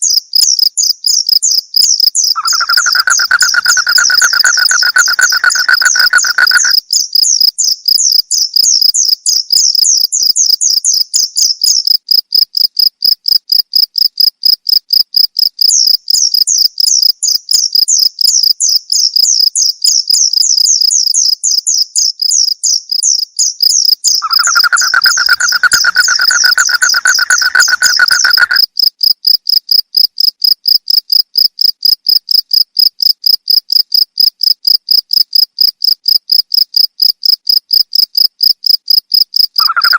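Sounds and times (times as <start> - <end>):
crickets chirping: 0.0 - 39.9
lower-pitched steady call: 2.4 - 6.7, 24.2 - 28.6.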